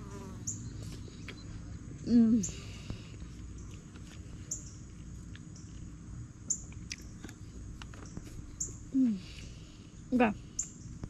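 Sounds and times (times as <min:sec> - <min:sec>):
high insect drone: 0:00.0 - 0:03.1
bird chirping: 0:00.1 - 0:01.6, 0:04.4 - 0:04.9.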